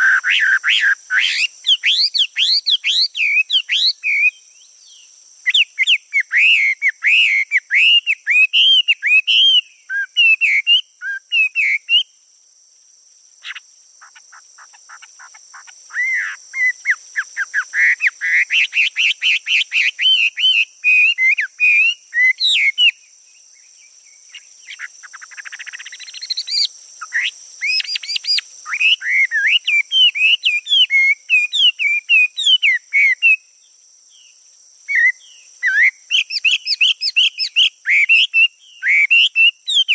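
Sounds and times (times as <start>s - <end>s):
songbird warbling: 0.0s - 12.0s, 13.4s - 22.9s
high insect drone: 0.0s - 39.9s.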